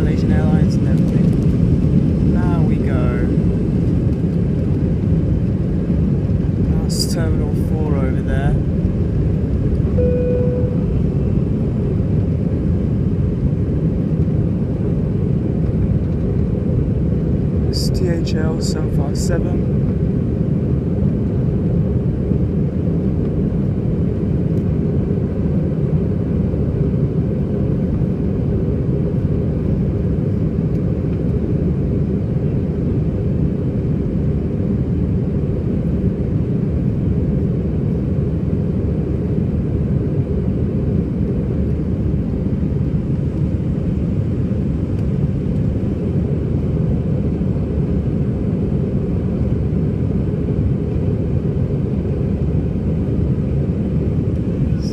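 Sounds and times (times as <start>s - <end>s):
jet engines roaring: 0.0s - 40.2s.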